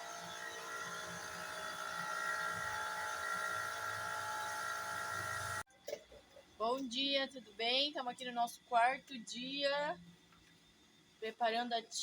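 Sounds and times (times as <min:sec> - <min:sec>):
small electric motor whining: 0:00.0 - 0:05.6.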